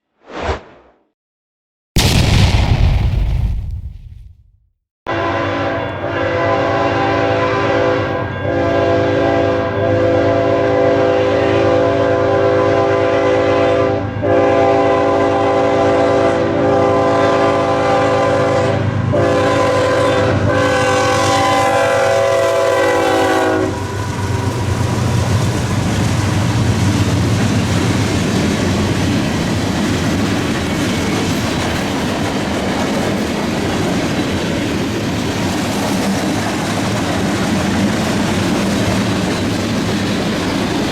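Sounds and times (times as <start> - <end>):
locomotive air horn blasts: 5.1 - 25.5.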